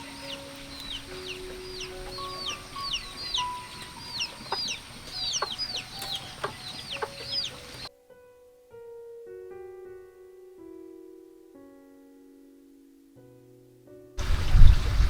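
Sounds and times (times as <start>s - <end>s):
chicks peeping: 0.0s - 7.9s
soft piano music: 0.0s - 15.0s.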